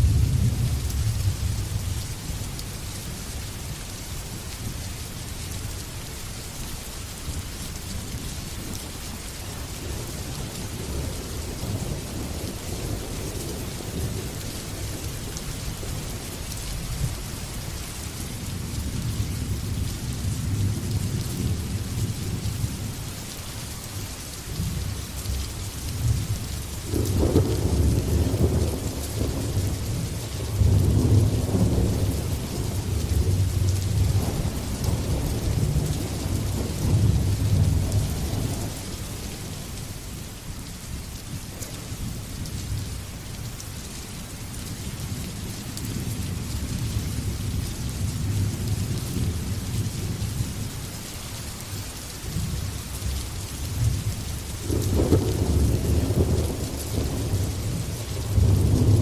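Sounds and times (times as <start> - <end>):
heavy rain: 0.0 - 59.0
rolling thunder: 26.9 - 39.3, 53.8 - 59.0.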